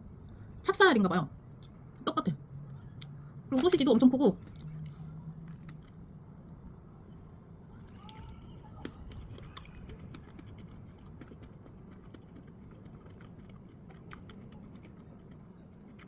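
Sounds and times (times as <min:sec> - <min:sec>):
chewing with mouth smacks: 0:02.7 - 0:06.6, 0:07.7 - 0:16.0.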